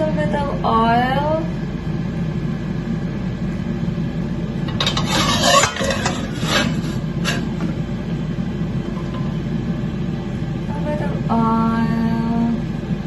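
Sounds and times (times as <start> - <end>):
steady low hum: 0.0 - 13.0
utensil scraping metal pan: 4.7 - 7.7.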